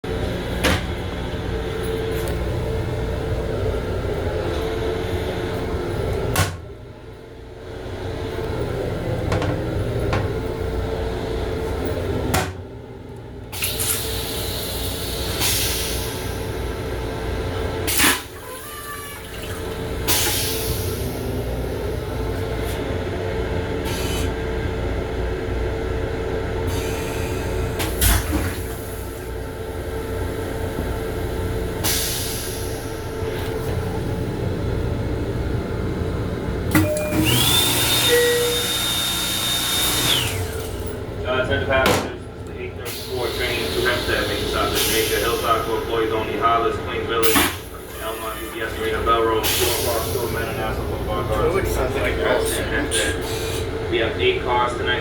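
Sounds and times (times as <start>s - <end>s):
electric railcar hum: 0.1s - 13.6s, 19.7s - 41.4s.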